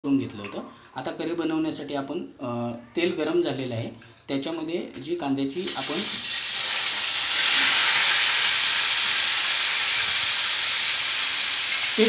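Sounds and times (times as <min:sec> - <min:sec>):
paste sizzling in hot oil: 0:05.5 - 0:12.0.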